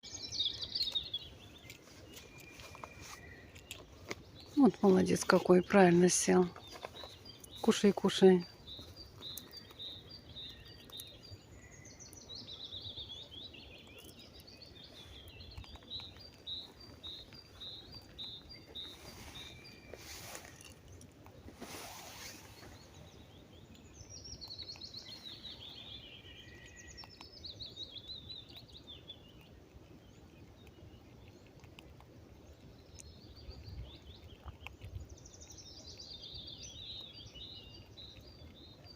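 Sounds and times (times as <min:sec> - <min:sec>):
small songbirds singing: 0:00.0 - 0:38.9
short hissing noises: 0:21.6 - 0:22.7.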